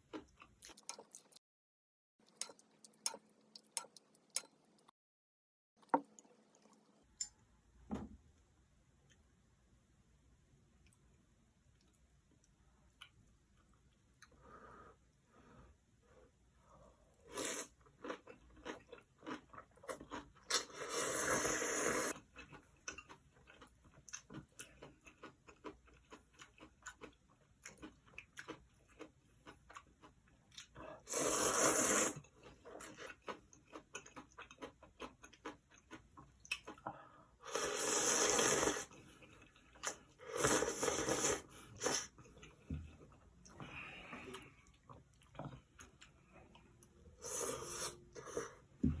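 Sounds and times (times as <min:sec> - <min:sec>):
chewing with crunching clicks: 0:00.0 - 0:01.4, 0:02.2 - 0:04.9, 0:17.7 - 0:20.8, 0:22.1 - 0:31.1, 0:32.2 - 0:37.0
loud slurps: 0:31.1 - 0:32.2, 0:37.5 - 0:38.9, 0:40.3 - 0:42.1.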